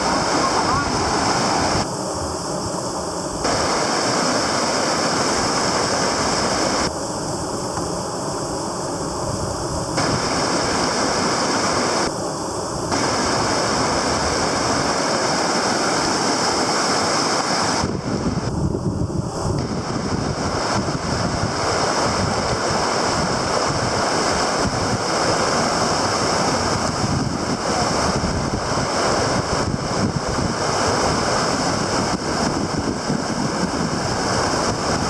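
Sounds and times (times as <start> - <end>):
river water rushing: 0.0 - 1.9, 3.4 - 7.0, 10.0 - 12.3, 12.9 - 18.5, 19.5 - 35.0
wind buffeting microphone: 0.0 - 1.9, 17.7 - 35.0.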